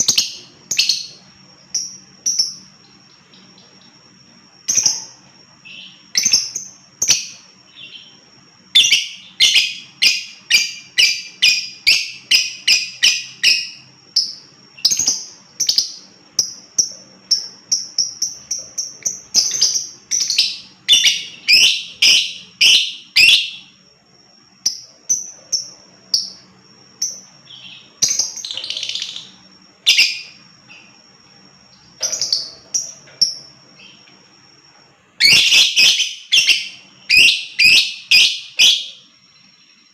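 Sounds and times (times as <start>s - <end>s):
lovebird shrill calls: 35.2s - 39.0s.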